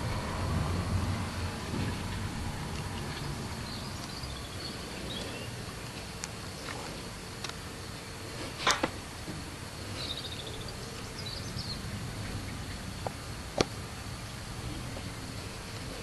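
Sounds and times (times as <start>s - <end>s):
bird chirps: 10.0s - 12.8s.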